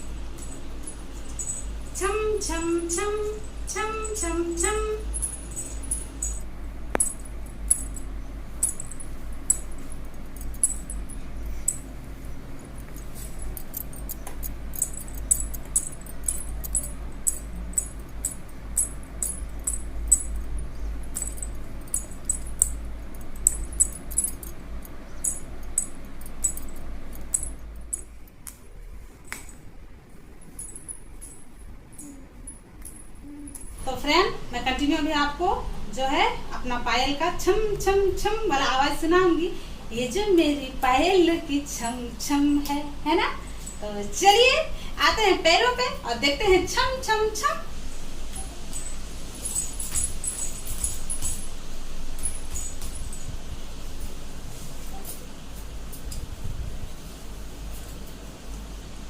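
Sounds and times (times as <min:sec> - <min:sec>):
anklet bells jingling: 0:00.0 - 0:28.3, 0:30.4 - 0:33.8, 0:48.4 - 0:53.4.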